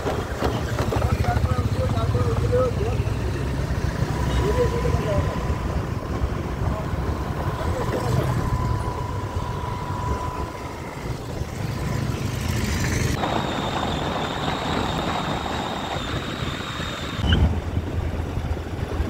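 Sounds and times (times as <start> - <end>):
road vehicle travelling: 0.0 - 19.0
wind rushing over microphone: 3.4 - 19.0.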